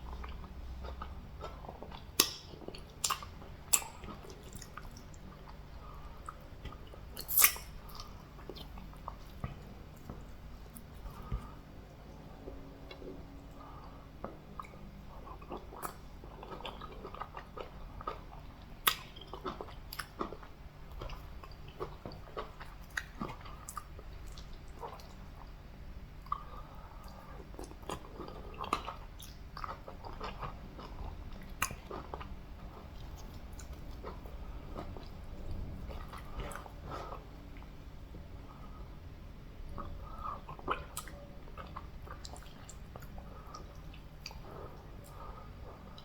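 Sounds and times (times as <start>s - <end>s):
mouth clicks and smacks: 6.3s - 10.2s.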